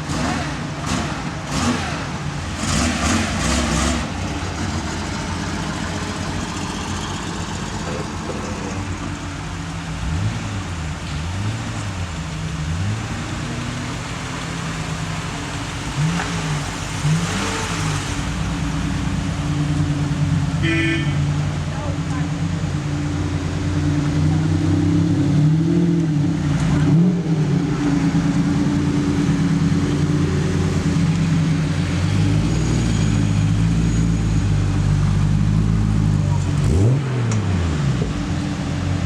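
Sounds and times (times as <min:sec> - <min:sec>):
car engine idling: 0:04.0 - 0:25.3.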